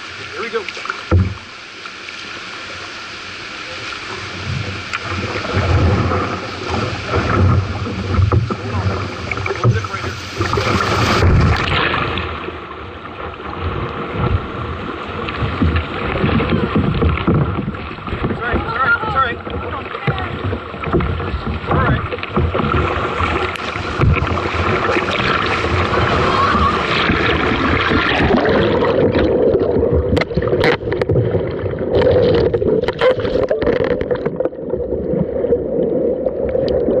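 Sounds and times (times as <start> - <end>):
river water rushing: 0.0 - 35.5
sharp knocks: 1.1 - 1.4, 24.0 - 24.4
wind rumbling on microphone: 4.1 - 37.0.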